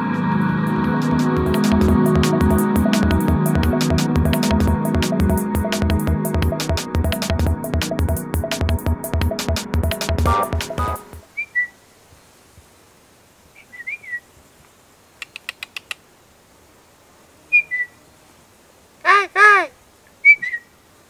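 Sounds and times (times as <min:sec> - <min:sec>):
arching whistled bird calls: 0:11.4 - 0:11.8, 0:13.6 - 0:14.2, 0:17.5 - 0:18.0, 0:20.2 - 0:20.7
bird ticking: 0:15.2 - 0:16.0.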